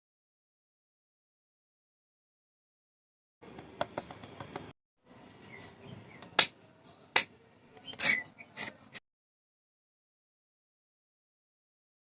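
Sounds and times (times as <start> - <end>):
sharp clicks and taps: 3.5 - 4.7.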